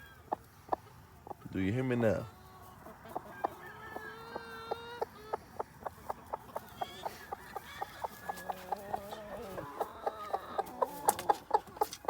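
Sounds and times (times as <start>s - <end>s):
chickens clucking: 0.0s - 12.0s
drawn-out chicken call: 2.1s - 12.0s.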